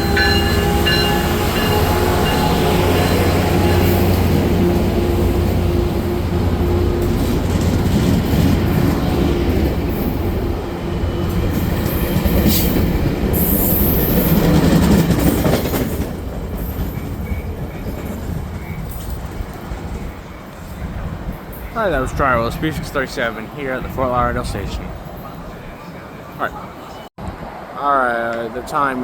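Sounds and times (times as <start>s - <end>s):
high wheel squeals: 0.0s - 6.7s
train cars rolling past: 0.0s - 29.0s.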